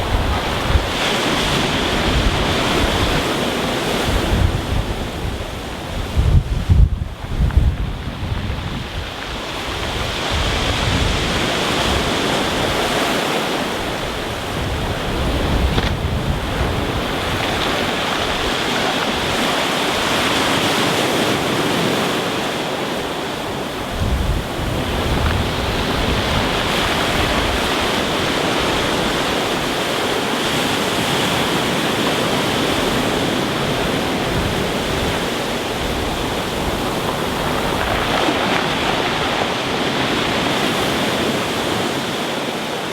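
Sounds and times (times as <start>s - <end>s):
sea waves washing over stones: 0.0s - 42.9s
wind buffeting microphone: 0.0s - 42.9s.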